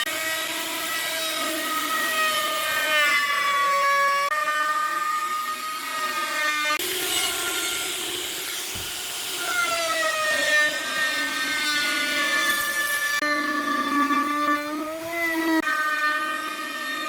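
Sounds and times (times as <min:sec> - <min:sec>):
power tool motor whining: 0:00.0 - 0:17.0
wood cutting hiss: 0:05.1 - 0:13.2.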